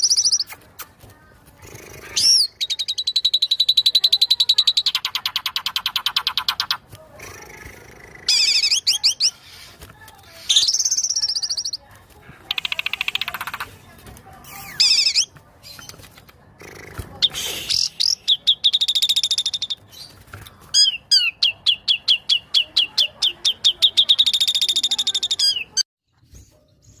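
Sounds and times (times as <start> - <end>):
songbird whistling and trilling: 0.0 - 0.6, 2.2 - 6.8, 10.4 - 11.8, 17.2 - 20.1, 20.8 - 25.8.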